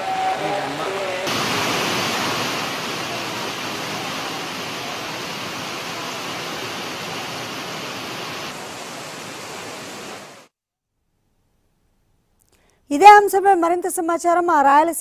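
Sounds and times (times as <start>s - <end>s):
heavy rain pouring: 0.0s - 10.5s.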